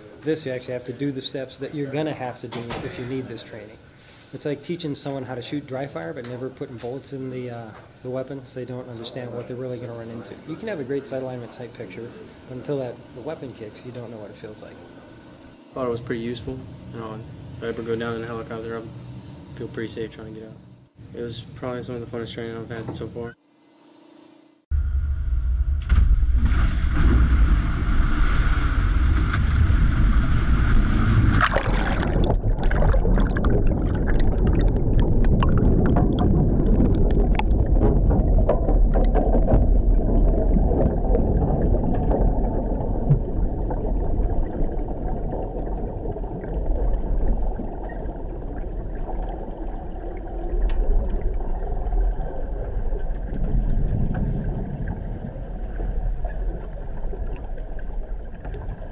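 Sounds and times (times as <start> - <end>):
heavy low rumble: 24.7 - 58.9
water churning and bubbling: 26.3 - 58.9
water rushing and splashing: 26.8 - 58.9.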